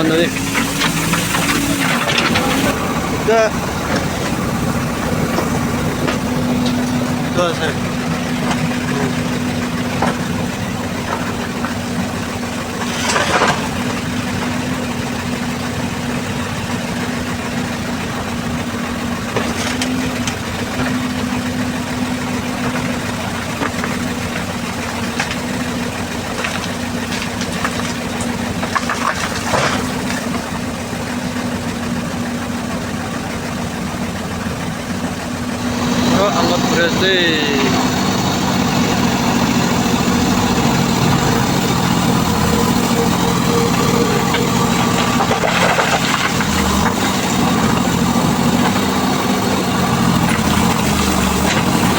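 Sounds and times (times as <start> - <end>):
engine running steadily: 0.0 - 51.9.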